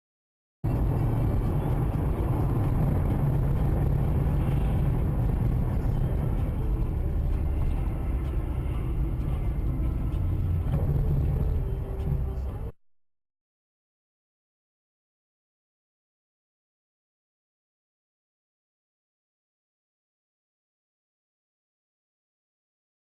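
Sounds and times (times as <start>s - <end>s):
car engine rumble: 0.6s - 12.8s
road noise: 0.6s - 12.8s.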